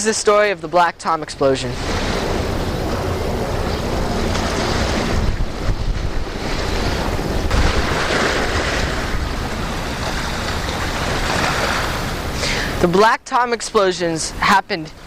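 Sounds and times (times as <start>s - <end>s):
wind buffeting microphone: 1.3s - 12.8s.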